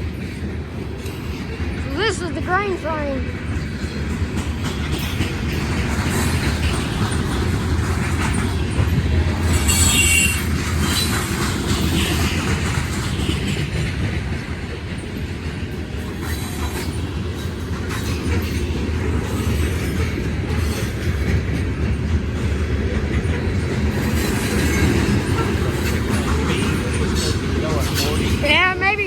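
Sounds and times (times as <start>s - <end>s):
train wheels rumbling on rail: 0.0s - 29.0s
high wheel squeaks: 8.2s - 12.5s.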